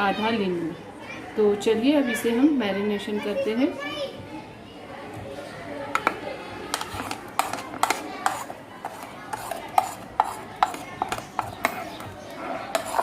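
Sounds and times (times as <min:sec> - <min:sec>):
spoon scraping bowl: 0:06.7 - 0:13.0.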